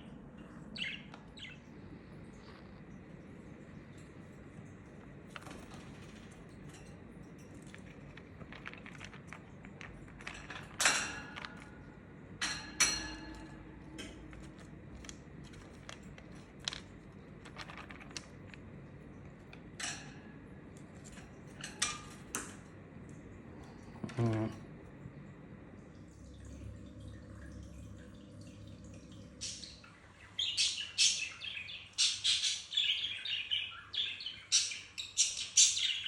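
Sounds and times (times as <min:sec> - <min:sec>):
budgerigars chirping: 0:29.4 - 0:36.0.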